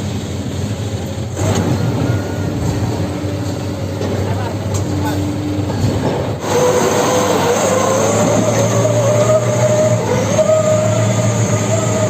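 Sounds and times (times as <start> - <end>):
heavy machinery engine hum: 0.0 - 12.0
wavering squeal-like tone: 6.4 - 12.0.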